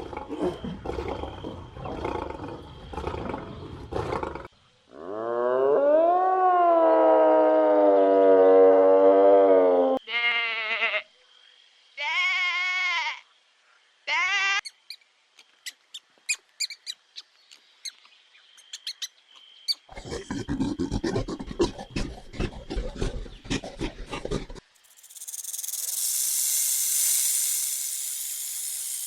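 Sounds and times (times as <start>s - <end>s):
animal bleating: 10.0s - 11.1s, 12.0s - 13.2s
crackly rattle: 20.0s - 29.0s.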